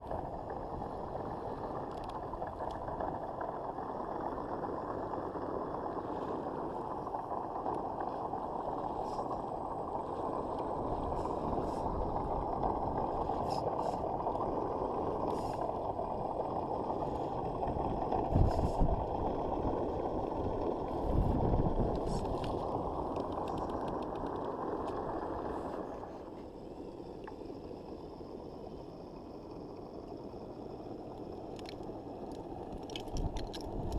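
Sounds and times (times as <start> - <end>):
rc car tires and drivetrain: 4.3 - 33.9.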